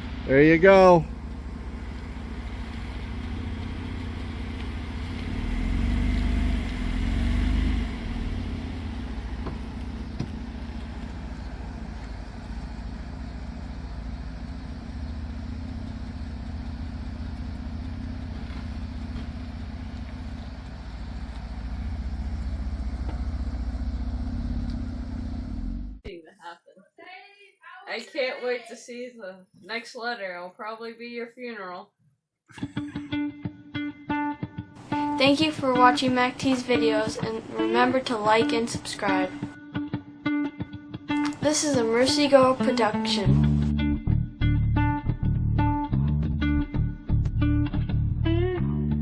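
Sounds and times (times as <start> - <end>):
car engine exhaust rumble: 0.0 - 26.1, 43.2 - 49.0.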